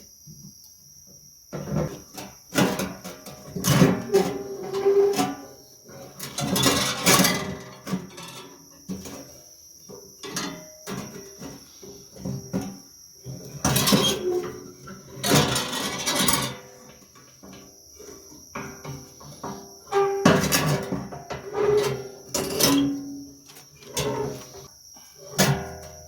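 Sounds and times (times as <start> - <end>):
steel wire clanking and scraping: 1.6 - 9.4, 12.2 - 24.7.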